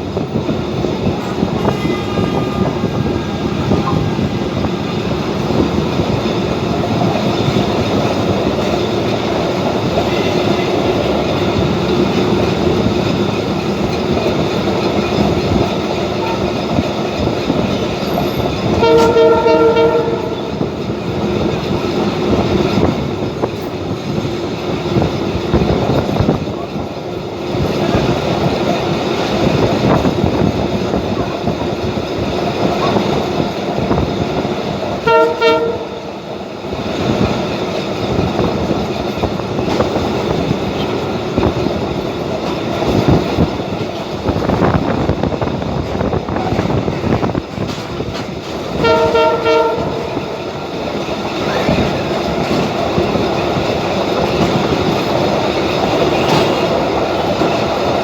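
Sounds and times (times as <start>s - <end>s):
train rattling on rails: 0.0s - 58.0s
train horn blasts: 1.3s - 4.3s, 18.6s - 20.8s, 35.0s - 36.3s, 48.8s - 50.5s.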